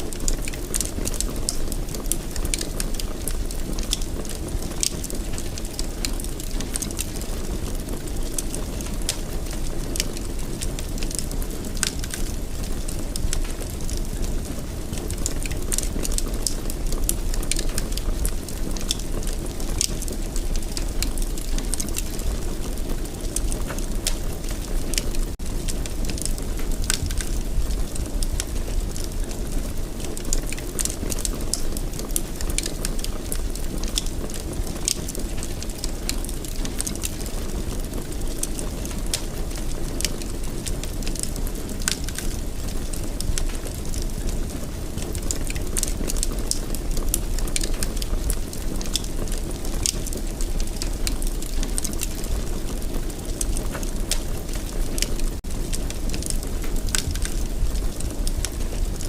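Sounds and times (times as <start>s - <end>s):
fire crackling and popping: 0.0s - 59.0s
fire flames rumbling: 0.0s - 59.0s.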